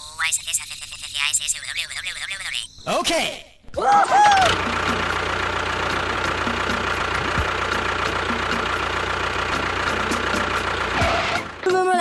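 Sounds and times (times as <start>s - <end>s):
small tractor motor whining: 3.8s - 11.9s.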